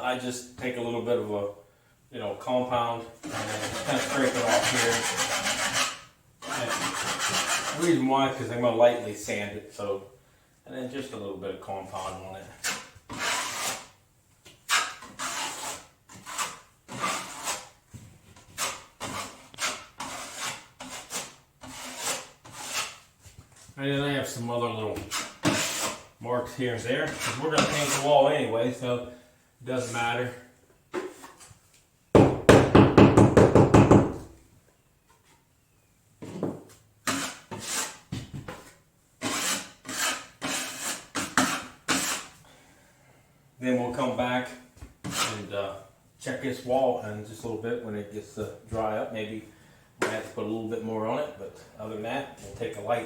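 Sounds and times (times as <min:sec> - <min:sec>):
drywall knife scraping: 0:03.2 - 0:08.0, 0:11.9 - 0:23.7, 0:25.0 - 0:26.1, 0:26.8 - 0:28.2, 0:36.2 - 0:42.4, 0:45.0 - 0:45.5.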